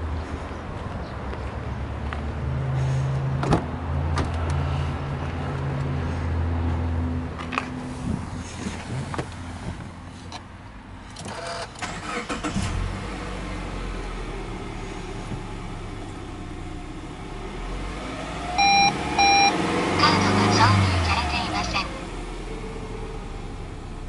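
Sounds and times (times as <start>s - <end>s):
car engine idling: 7.5s - 17.6s
starter cranking engine: 11.2s - 12.8s.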